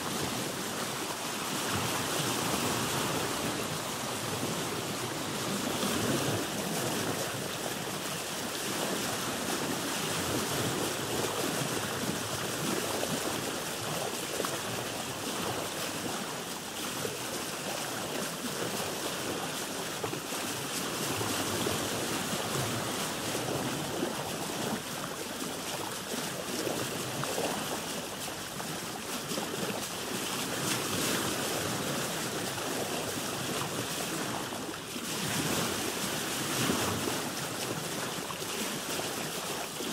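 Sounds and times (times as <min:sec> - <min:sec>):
wind on microphone: 0:00.0 - 0:17.0
water lapping against boat hull: 0:00.0 - 0:39.9.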